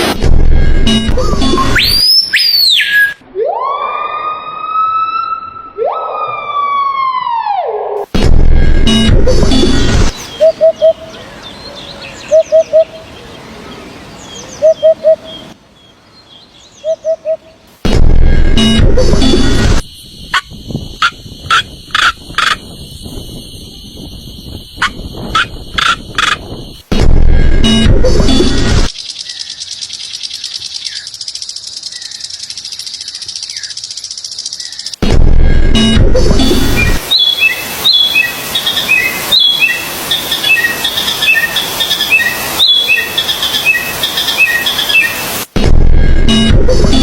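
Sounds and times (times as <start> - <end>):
high bird chirps: 1.5 - 3.2, 19.9 - 26.8, 29.0 - 35.0, 36.7 - 45.5.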